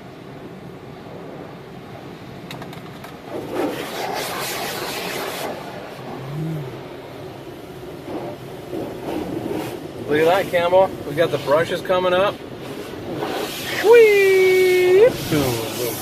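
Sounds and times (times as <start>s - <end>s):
car wash machinery rumble: 0.0s - 16.0s
water spray hissing on car: 3.2s - 16.0s.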